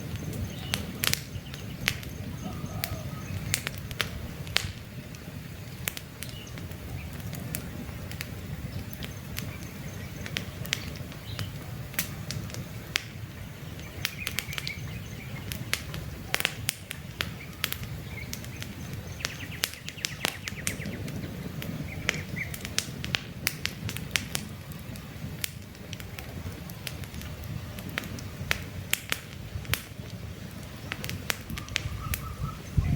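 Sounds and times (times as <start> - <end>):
campfire crackling and popping: 0.0 - 32.9
low rumble of burning: 0.0 - 32.9
faint bird chirps: 0.1 - 3.6, 17.3 - 21.0, 31.6 - 32.9.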